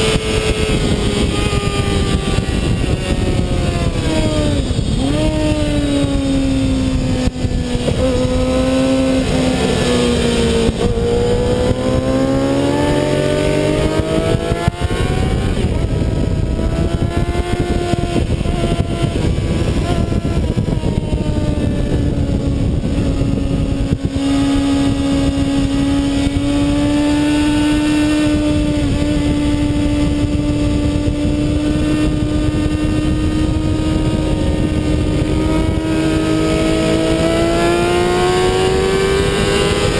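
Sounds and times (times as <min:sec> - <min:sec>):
constant rushing noise: 0:00.0 - 0:39.9
motorcycle engine at high revs: 0:00.0 - 0:39.9.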